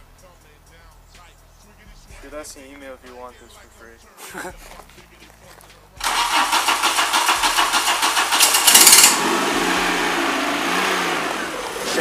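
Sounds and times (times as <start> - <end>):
car engine starting and idling: 5.2 - 12.0
starter motor cranking: 6.0 - 10.3.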